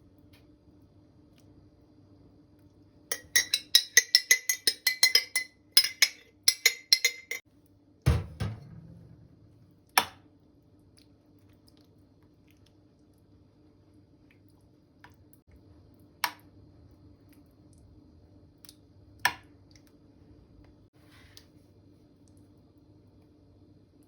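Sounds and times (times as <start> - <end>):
spoon clinking against glass: 3.1 - 7.4
heavy knock of object set down: 8.1 - 9.1.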